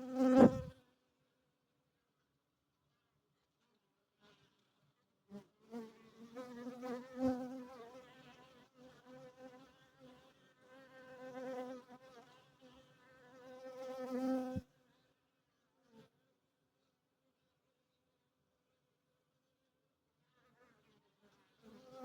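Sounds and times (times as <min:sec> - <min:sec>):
honeybees buzzing: 0:00.2 - 0:00.7.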